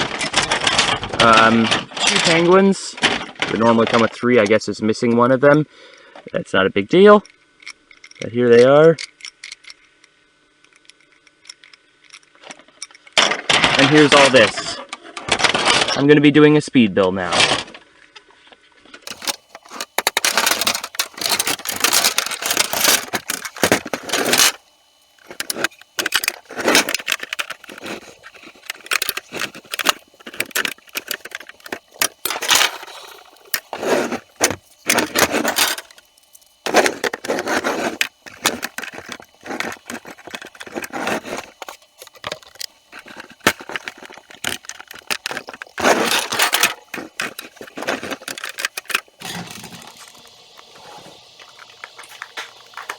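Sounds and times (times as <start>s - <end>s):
plastic bricks clicking and clattering: 19.0s - 24.6s, 25.2s - 36.0s, 36.6s - 50.0s.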